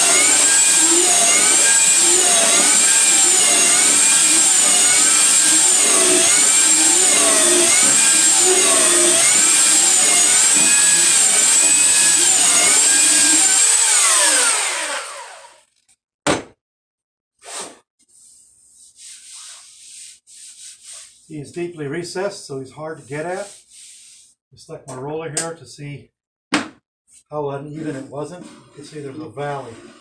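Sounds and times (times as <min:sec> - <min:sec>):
electric sander running: 0:00.0 - 0:15.6.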